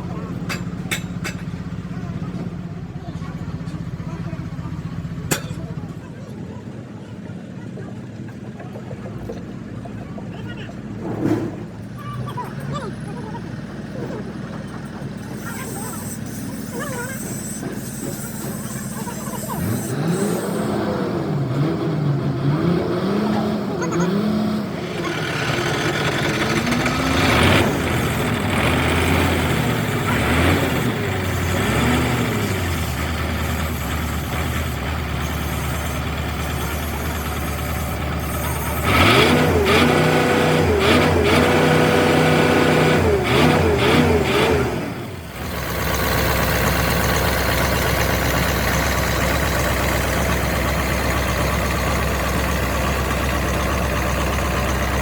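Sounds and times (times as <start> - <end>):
diesel engine revving and idling: 0.0 - 6.3, 10.4 - 55.0.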